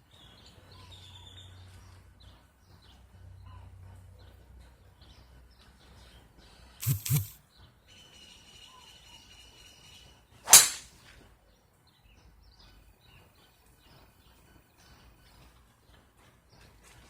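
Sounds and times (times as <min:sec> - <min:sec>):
golf club striking ball: 0:10.5 - 0:11.0.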